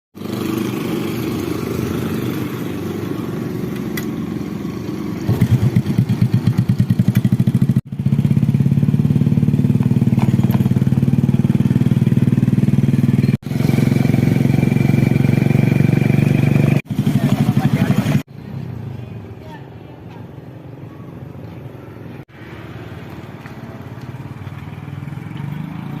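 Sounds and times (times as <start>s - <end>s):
engine running: 0.2s - 18.3s.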